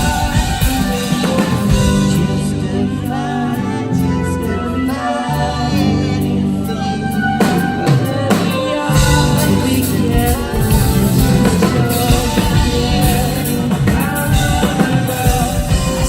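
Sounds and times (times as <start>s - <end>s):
live rock band: 0.0s - 16.0s
drum hits: 7.4s - 16.0s.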